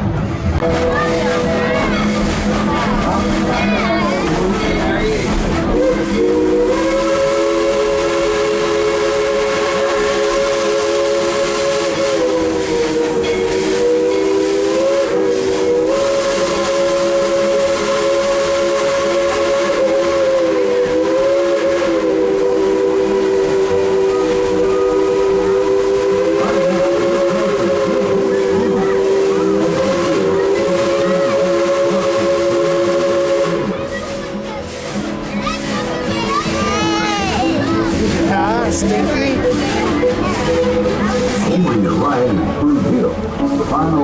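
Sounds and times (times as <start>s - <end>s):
steam hissing: 0.6s - 44.0s
steam locomotive chime whistle: 3.3s - 35.7s.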